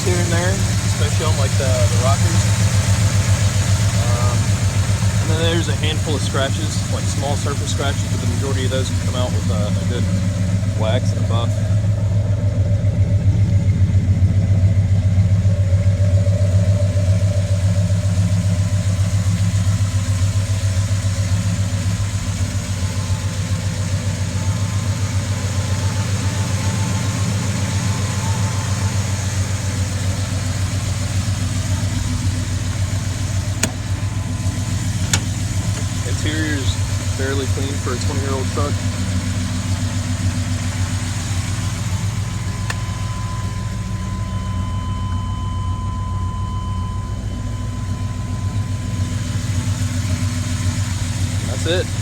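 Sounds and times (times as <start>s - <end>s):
truck engine idling: 0.0s - 52.0s
sharp clicks: 33.4s - 36.1s.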